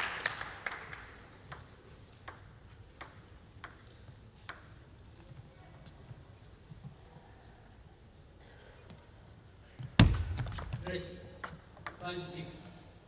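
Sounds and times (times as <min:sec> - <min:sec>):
crowd applause: 0:00.0 - 0:01.2
table tennis ball clicks: 0:00.7 - 0:05.4, 0:10.0 - 0:12.2.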